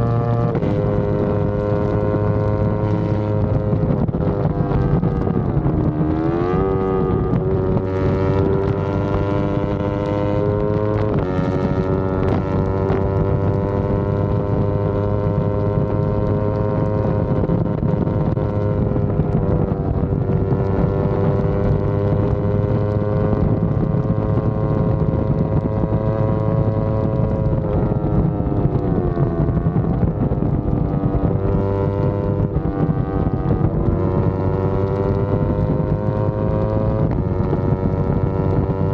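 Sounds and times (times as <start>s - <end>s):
wind on microphone: 0.0s - 38.9s.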